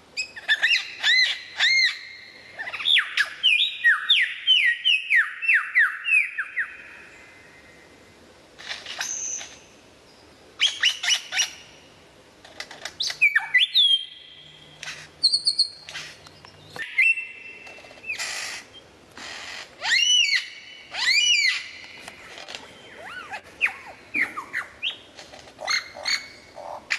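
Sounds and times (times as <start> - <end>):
harsh raspy bird calls: 13.1 - 26.9.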